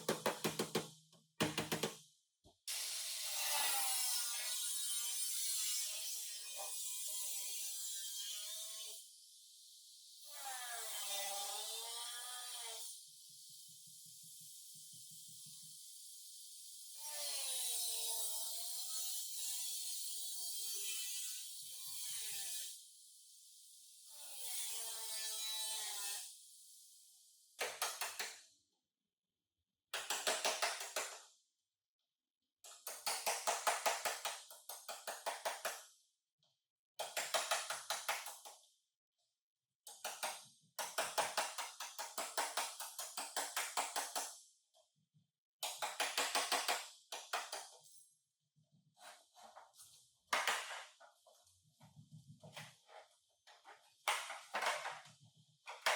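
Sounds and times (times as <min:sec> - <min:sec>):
rapid sharp knocks: 0:00.0 - 0:02.0.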